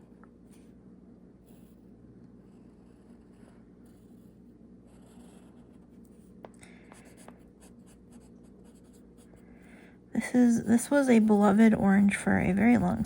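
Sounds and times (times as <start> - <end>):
pen scratching on paper: 1.4 - 6.4, 7.0 - 9.4, 10.5 - 13.0.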